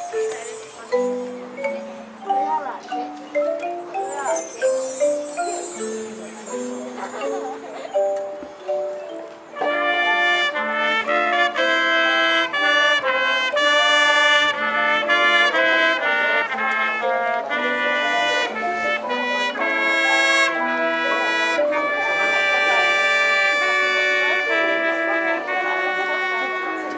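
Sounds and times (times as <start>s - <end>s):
marching band brass playing: 9.6s - 26.9s.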